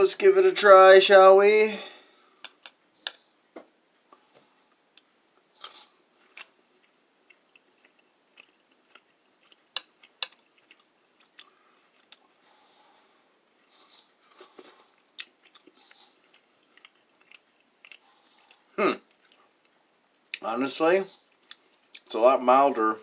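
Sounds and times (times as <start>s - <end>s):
person chewing food: 4.0s - 20.4s, 21.2s - 22.1s.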